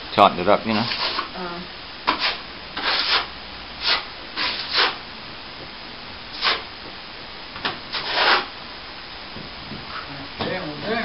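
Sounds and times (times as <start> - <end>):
plastering tool scraping ceiling: 0.7 - 1.3, 2.1 - 5.0, 7.9 - 8.5.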